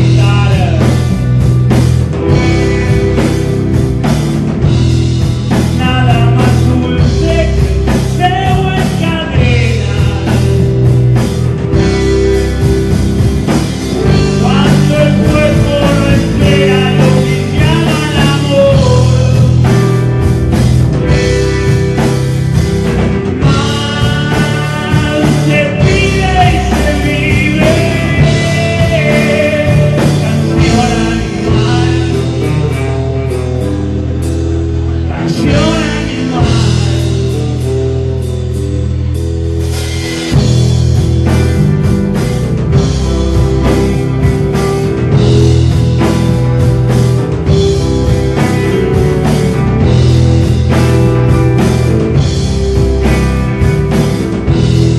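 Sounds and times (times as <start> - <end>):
rock band playing: 0.0 - 54.9.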